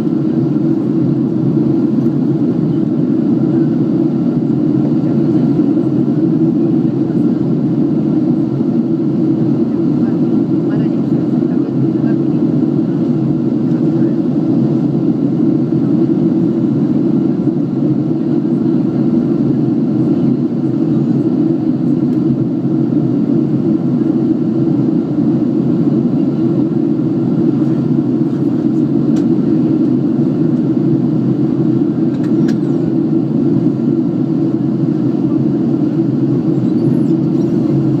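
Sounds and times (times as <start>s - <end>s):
airliner cabin engine rush: 0.0s - 38.0s.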